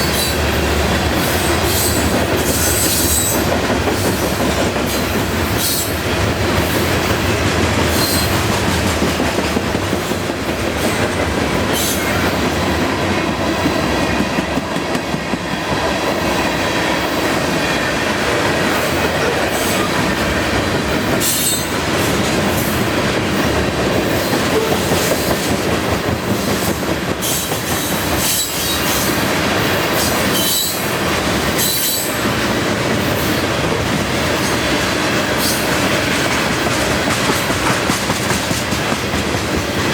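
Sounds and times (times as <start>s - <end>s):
freight train rumble: 0.0s - 39.9s.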